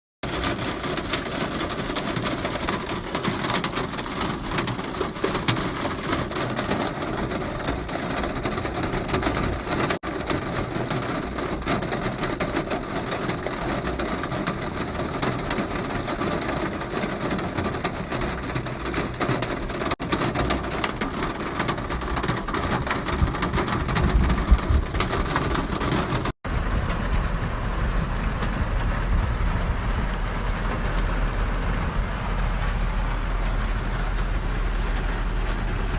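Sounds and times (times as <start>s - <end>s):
heavy rain pouring: 0.2s - 35.9s
low rumble: 26.4s - 35.9s.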